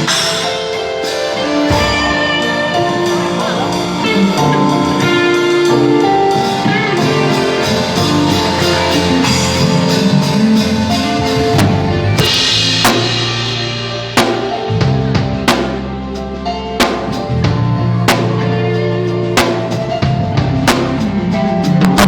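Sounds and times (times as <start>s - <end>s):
cymbal crash: 0.0s - 15.9s
drum kit: 0.0s - 22.0s
sustained pitched chords: 0.0s - 22.0s.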